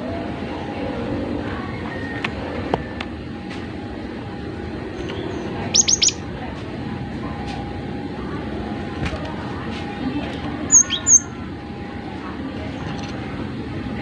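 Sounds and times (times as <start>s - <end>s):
steady background noise: 0.0s - 14.0s
bird giving sharp high calls: 5.7s - 6.2s, 10.7s - 11.3s.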